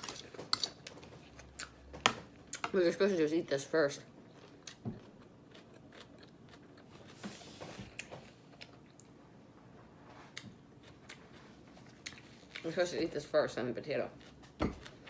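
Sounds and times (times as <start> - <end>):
chewing salad greens: 4.2 - 9.2, 10.2 - 15.0.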